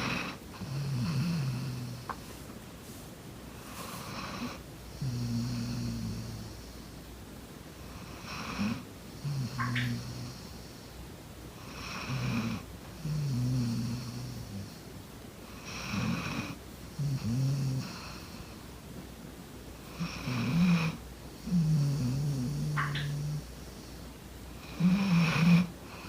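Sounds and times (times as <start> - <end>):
dog snoring loudly: 0.0 - 2.1, 3.8 - 6.8, 7.9 - 10.8, 11.6 - 14.8, 15.4 - 18.5, 19.8 - 23.9, 24.6 - 26.0.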